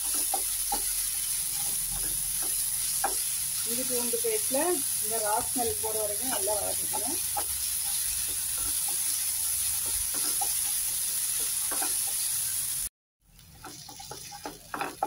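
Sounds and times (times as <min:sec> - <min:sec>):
wooden spatula scraping and tapping: 0:00.0 - 0:03.3, 0:05.3 - 0:09.2, 0:09.8 - 0:12.3, 0:13.5 - 0:15.0
food frying in oil: 0:00.0 - 0:15.0.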